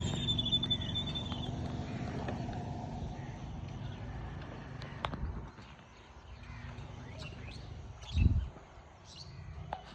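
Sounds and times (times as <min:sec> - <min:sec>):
motorcycle engine idling: 0:00.0 - 0:07.8.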